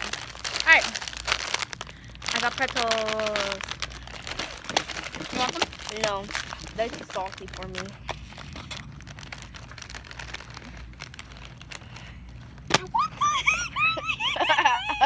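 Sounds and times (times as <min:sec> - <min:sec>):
bag rustling: 0:00.0 - 0:13.0
pretzel cracking: 0:00.0 - 0:13.3
high-pitched giggling: 0:12.8 - 0:15.0.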